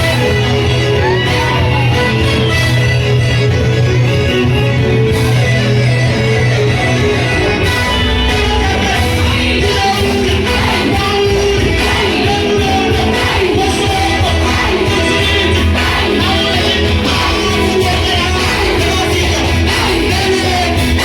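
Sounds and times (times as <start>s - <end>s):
loud band music: 0.0s - 21.0s
voices singing: 6.2s - 21.0s.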